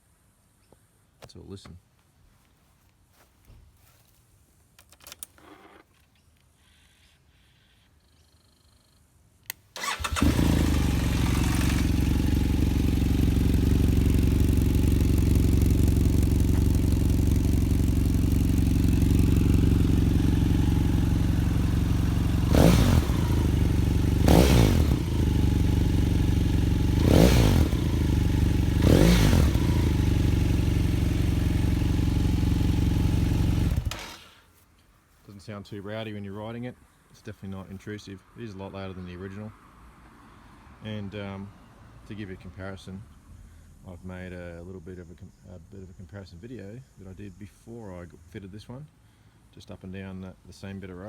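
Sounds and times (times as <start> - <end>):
motorcycle engine starting and idling: 9.5 - 34.6
motorcycle engine revving: 9.8 - 34.3.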